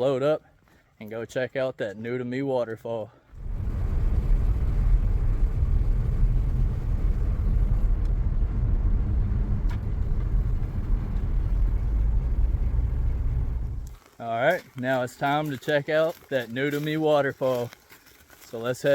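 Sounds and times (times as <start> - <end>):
car engine and road rumble: 3.3 - 14.1.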